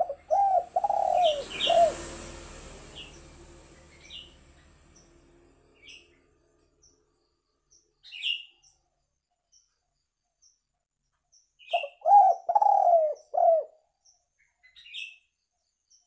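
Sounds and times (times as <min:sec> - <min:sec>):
high bird chirps: 0:00.0 - 0:07.0
hiss: 0:00.4 - 0:06.2.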